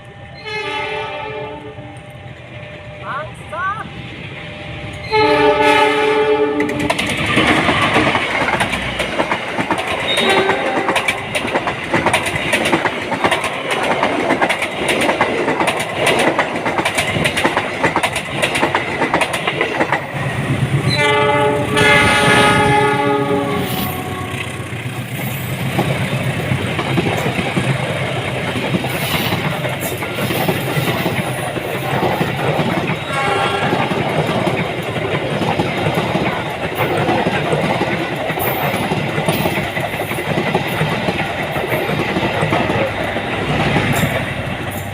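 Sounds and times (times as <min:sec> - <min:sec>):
locomotive horn: 0:00.4 - 0:02.0, 0:05.0 - 0:07.0, 0:10.1 - 0:11.2, 0:20.9 - 0:24.6, 0:33.0 - 0:34.0
train wheels clattering on rails: 0:04.9 - 0:44.9.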